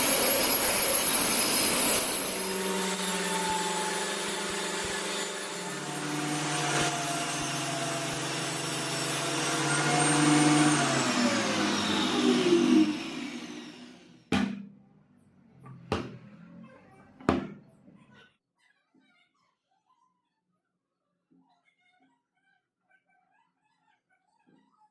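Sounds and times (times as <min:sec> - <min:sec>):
power tool motor winding down: 0:00.0 - 0:14.3
sharp knocks: 0:14.3 - 0:14.7.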